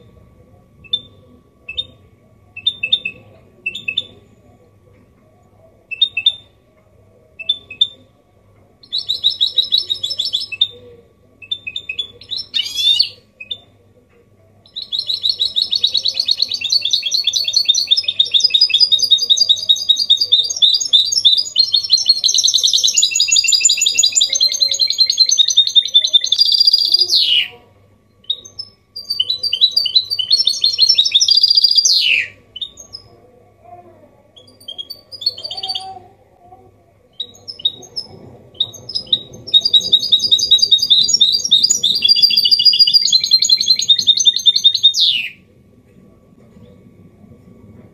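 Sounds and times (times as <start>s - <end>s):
finch singing trills: 28.2s - 33.1s, 37.2s - 45.4s.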